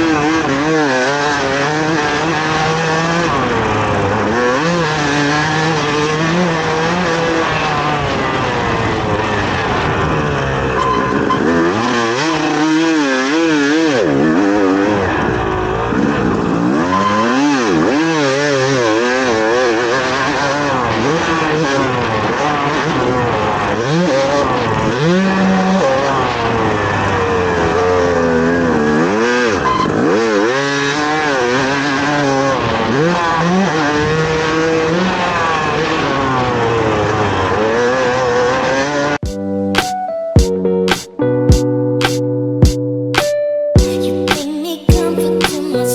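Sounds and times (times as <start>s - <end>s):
dirt bike engine revving: 0.0s - 39.2s
music: 39.2s - 45.9s.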